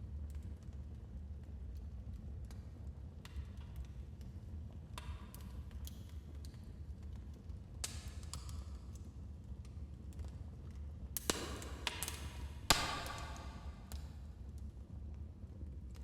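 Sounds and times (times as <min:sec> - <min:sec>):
loud fire snaps: 0:11.2 - 0:14.7.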